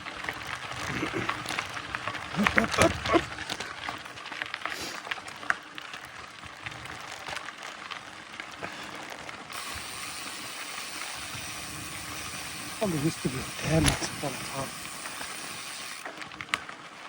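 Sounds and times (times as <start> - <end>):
mountain bike rolling on dirt: 0.0 - 17.0
tyre hiss: 9.6 - 16.0.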